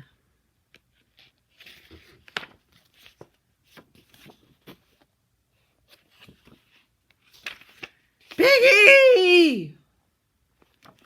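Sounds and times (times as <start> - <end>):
book pages turning: 0.7 - 8.4, 10.5 - 11.0.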